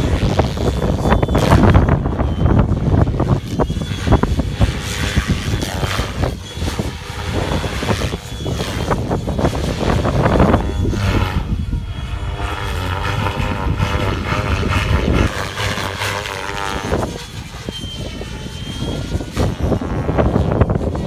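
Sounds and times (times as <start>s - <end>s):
rc helicopter rotor and motor whine: 0.0s - 21.0s
wind rumble on microphone: 0.0s - 21.0s.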